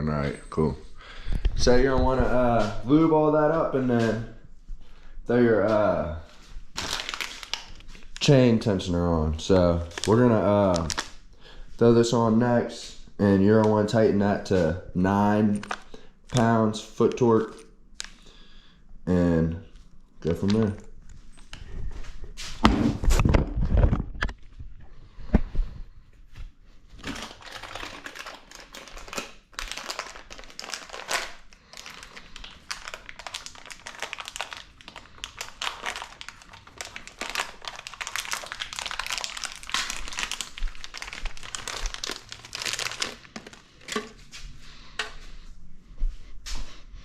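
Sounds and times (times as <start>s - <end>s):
packaging crinkling and rustling: 6.3s - 11.3s, 13.4s - 18.3s, 19.6s - 21.9s, 26.9s - 44.4s.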